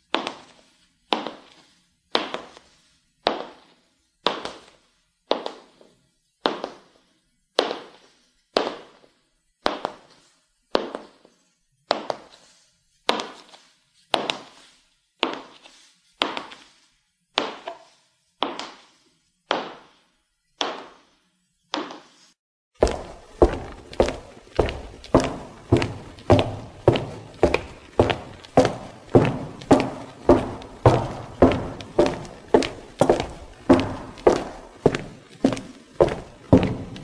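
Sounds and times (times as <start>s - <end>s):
high heels clicking on hard floor: 22.8s - 37.0s.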